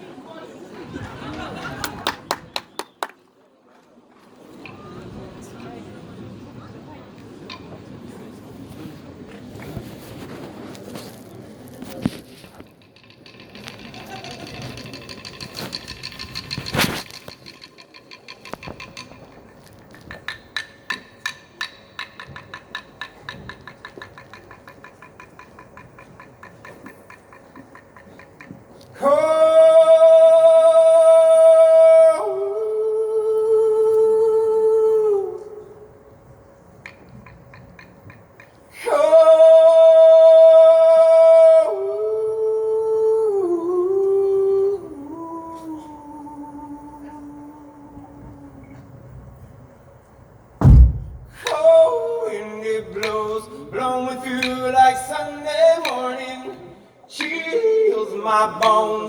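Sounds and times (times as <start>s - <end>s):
rhythmic wooden clicks: 12.7s - 28.8s, 36.8s - 38.6s, 54.2s - 55.0s
man singing unaccompanied: 29.0s - 34.9s, 38.8s - 47.8s, 51.4s - 59.0s.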